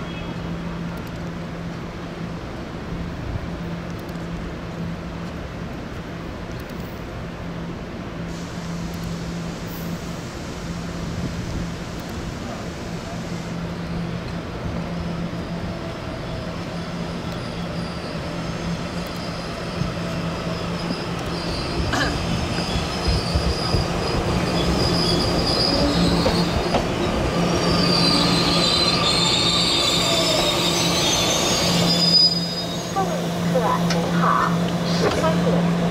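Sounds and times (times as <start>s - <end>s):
train wheels rumbling on rails: 8.5s - 35.9s
high brake squeal: 16.2s - 35.0s.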